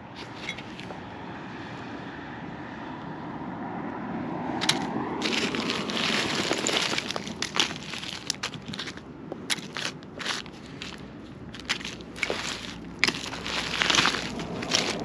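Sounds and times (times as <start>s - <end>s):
dry debris crunching: 4.6s - 15.0s.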